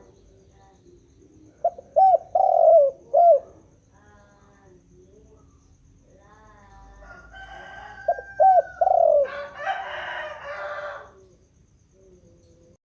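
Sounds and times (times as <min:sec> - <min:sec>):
dove cooing: 0:00.0 - 0:04.7, 0:06.5 - 0:11.2.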